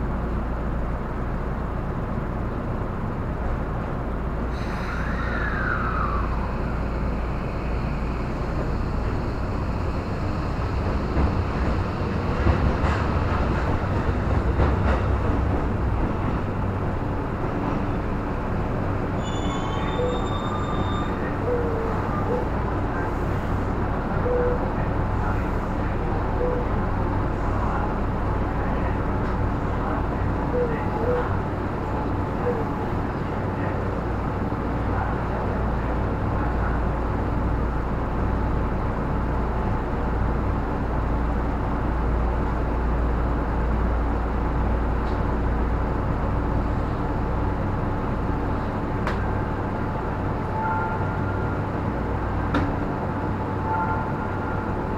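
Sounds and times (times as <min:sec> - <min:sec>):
train interior rumble and hum: 0:00.0 - 0:54.9
faint short squeaks: 0:19.2 - 0:21.3.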